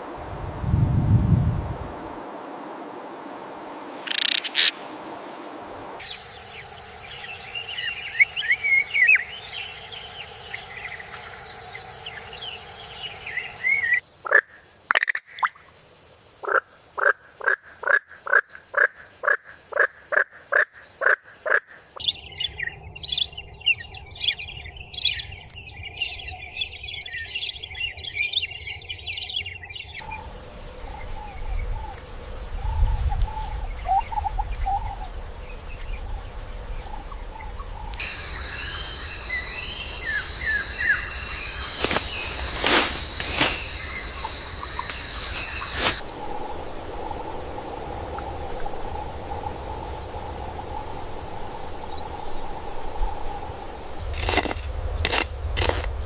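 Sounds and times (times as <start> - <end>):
insect drone: 0.0 - 14.9, 15.5 - 56.0
frog croaking: 4.0 - 4.8, 13.4 - 15.7
bird chirps: 22.0 - 30.0, 37.6 - 46.1.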